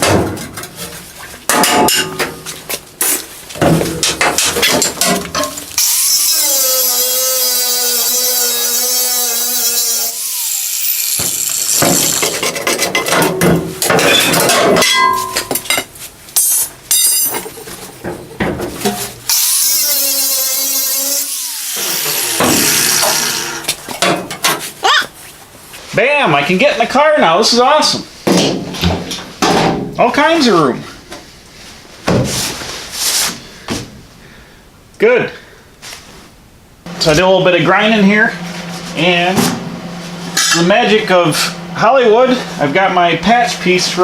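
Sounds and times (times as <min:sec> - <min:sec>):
metal knocks and clatter: 0:00.0 - 0:02.5, 0:03.6 - 0:05.6, 0:11.2 - 0:15.9, 0:16.9 - 0:19.2
cut-off wheel cutting steel: 0:05.8 - 0:12.5, 0:19.3 - 0:23.8.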